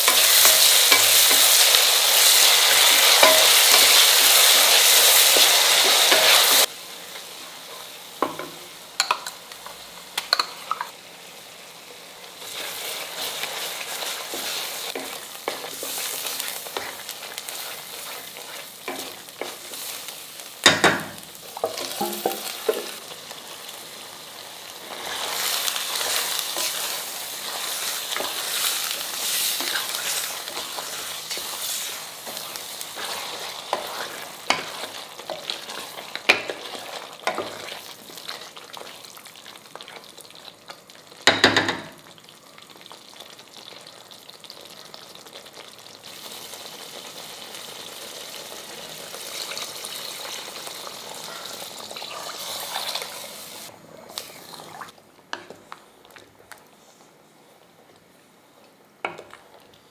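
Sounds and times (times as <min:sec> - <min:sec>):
food sizzling in a pot: 0:00.0 - 0:55.6
spoon clattering on pot: 0:03.2 - 0:03.9, 0:08.2 - 0:09.4, 0:20.6 - 0:22.9.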